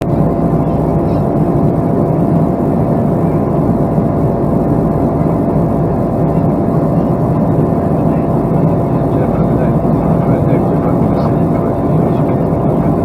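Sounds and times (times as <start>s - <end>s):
aircraft rumble: 0.0s - 13.0s
thin constant tone: 6.1s - 13.0s.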